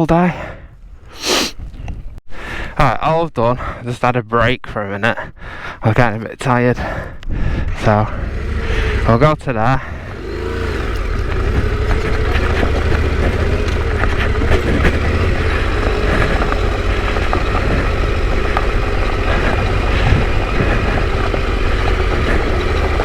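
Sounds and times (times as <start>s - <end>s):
motorcycle engine running: 7.7s - 23.0s.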